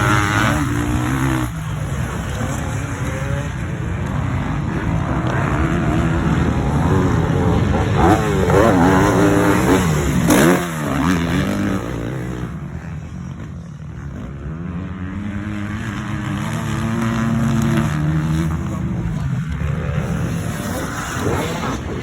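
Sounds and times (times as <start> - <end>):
motocross bike engine revving: 0.0 - 22.0.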